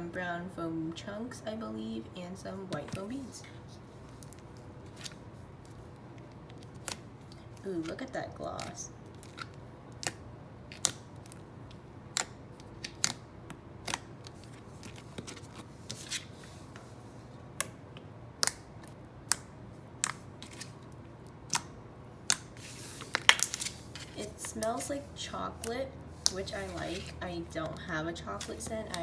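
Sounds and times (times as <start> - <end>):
slime clicking and popping: 12.1 - 13.2.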